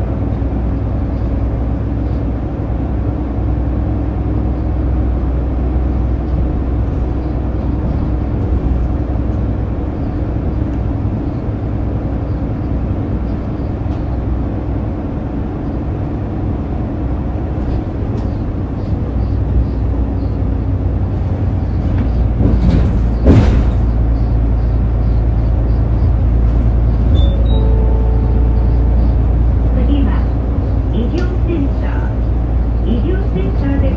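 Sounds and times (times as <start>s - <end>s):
bus engine rumble: 0.0s - 33.9s
road noise: 0.0s - 33.9s.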